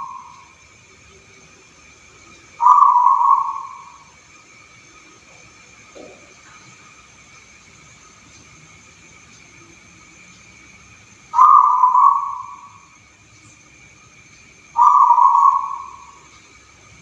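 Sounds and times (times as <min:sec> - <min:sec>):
dove cooing: 0:00.0 - 0:00.6, 0:02.5 - 0:04.1, 0:11.3 - 0:12.8, 0:14.8 - 0:16.4.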